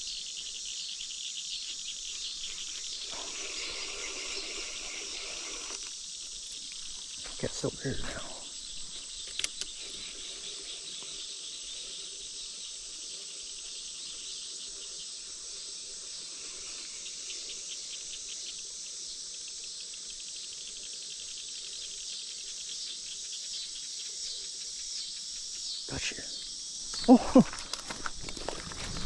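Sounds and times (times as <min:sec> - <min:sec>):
insects chirring: 0:00.0 - 0:29.0.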